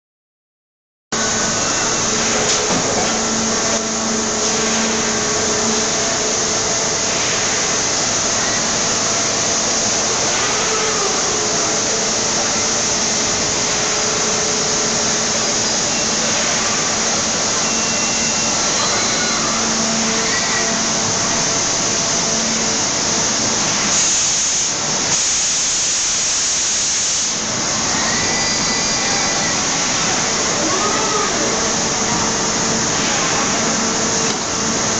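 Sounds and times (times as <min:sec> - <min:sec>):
low machinery hum: 0:01.2 - 0:24.0
hydraulic press machinery hiss: 0:01.2 - 0:34.9.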